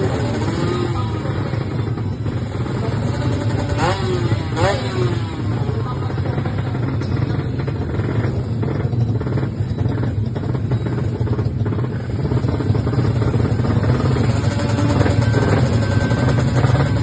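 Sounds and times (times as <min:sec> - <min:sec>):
two-stroke engine running: 0:00.0 - 0:17.0.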